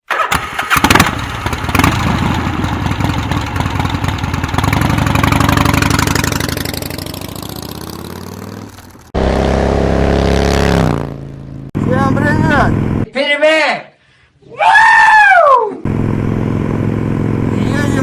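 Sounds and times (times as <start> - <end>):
motorcycle engine running: 0.7 - 13.1, 15.9 - 18.0.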